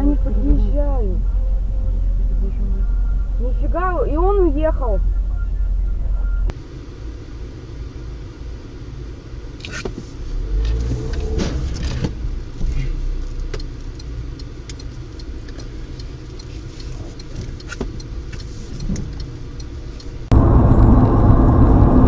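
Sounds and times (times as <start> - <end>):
car engine and road rumble: 0.0 - 22.0
faint clicks: 10.6 - 20.2.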